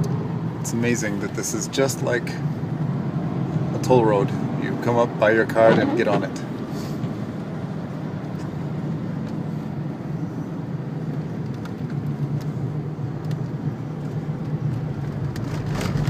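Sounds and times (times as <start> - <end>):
low engine drone: 0.0 - 16.0
tyre and road noise: 0.0 - 16.0.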